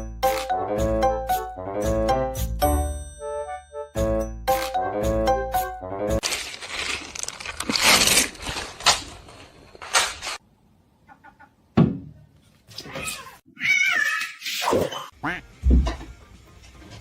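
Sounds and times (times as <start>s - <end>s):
cat meowing: 12.9s - 14.2s.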